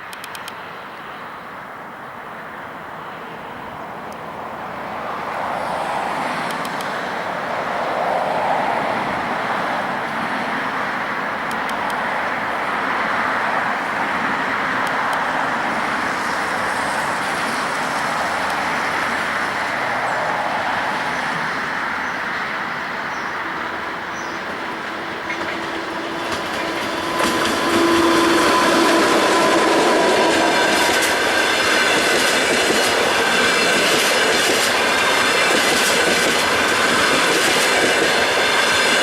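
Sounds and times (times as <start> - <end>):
passenger train rumbling past: 0.0 - 39.0.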